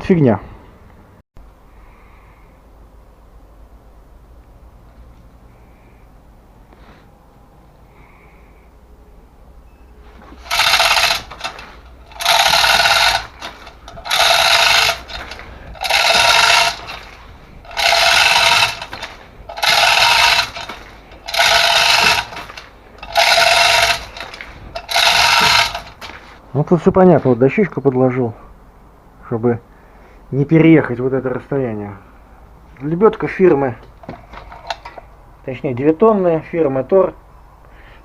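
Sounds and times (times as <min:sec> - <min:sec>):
chain hoist ratchet rattling: 0:10.4 - 0:26.2, 0:34.0 - 0:35.0.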